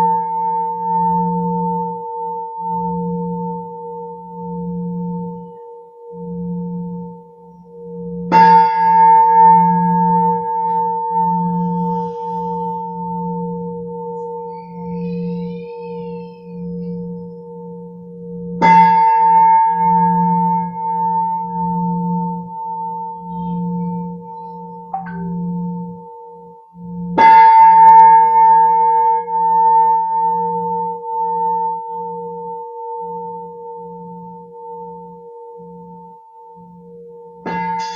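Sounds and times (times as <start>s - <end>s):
higher singing bowl tones: 0.0s - 37.9s
low singing bowl humming: 0.0s - 37.9s
singing bowl struck: 7.5s - 32.5s, 33.2s - 37.9s.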